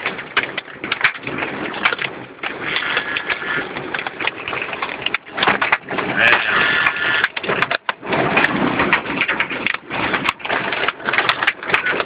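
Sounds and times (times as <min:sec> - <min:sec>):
hail and rain on car roof: 0:00.0 - 0:12.0.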